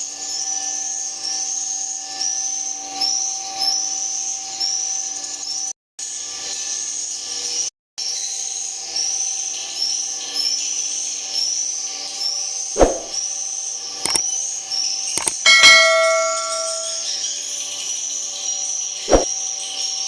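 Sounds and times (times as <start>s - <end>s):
sharp knocks: 12.8s - 13.1s
swiftlet chirps: 12.8s - 13.2s, 15.2s - 17.2s, 19.1s - 19.3s
metallic clang: 15.2s - 17.1s.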